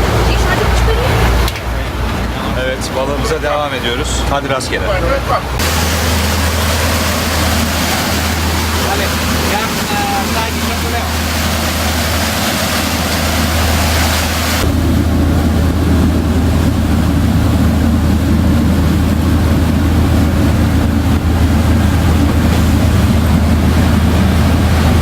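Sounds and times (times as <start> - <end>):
boat engine droning: 0.0 - 25.0
water noise: 0.0 - 25.0
wind noise: 5.4 - 25.0.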